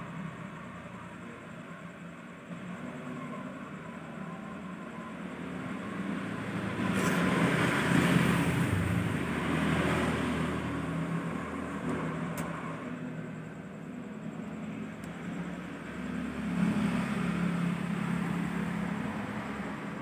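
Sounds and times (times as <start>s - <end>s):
vehicle passing by: 5.6s - 12.9s, 15.3s - 20.0s.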